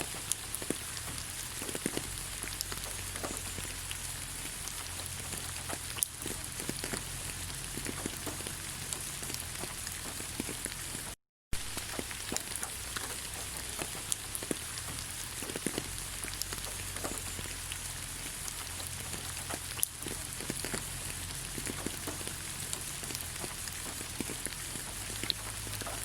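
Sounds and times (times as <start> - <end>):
rain falling on leaves: 0.0 - 26.0.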